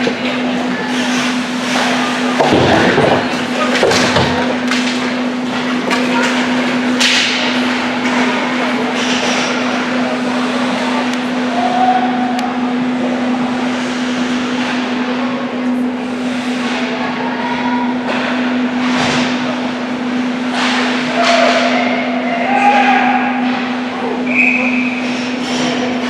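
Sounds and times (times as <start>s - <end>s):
distant shouts: 11.4s - 12.4s, 21.1s - 25.1s.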